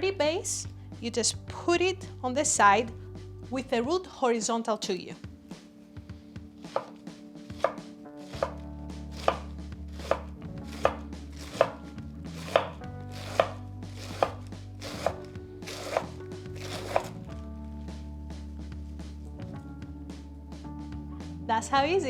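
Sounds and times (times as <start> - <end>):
knife striking cutting board: 6.7 - 7.0, 7.6 - 11.8, 12.4 - 17.2
knife slicing cabbage: 6.7 - 17.2.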